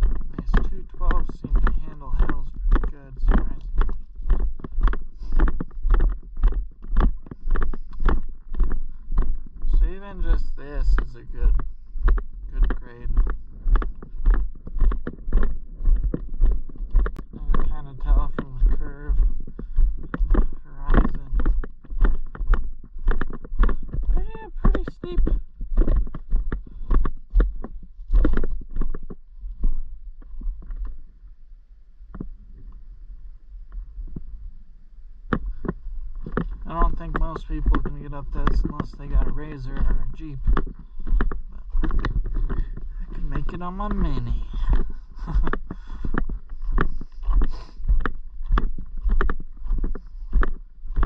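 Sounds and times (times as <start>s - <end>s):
bike knocking and rattling: 0.0s - 30.9s, 35.3s - 51.0s
low rumble: 0.0s - 51.0s
mini bike knocks and clatters: 35.3s - 51.0s.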